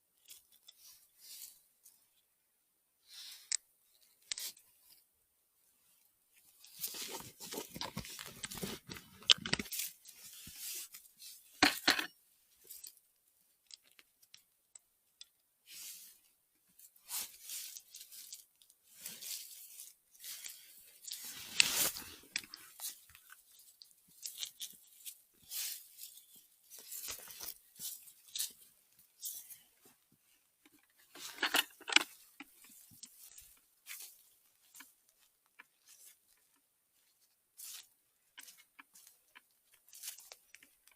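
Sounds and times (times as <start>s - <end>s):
rustling and crunching leaf litter: 18.9s - 22.8s.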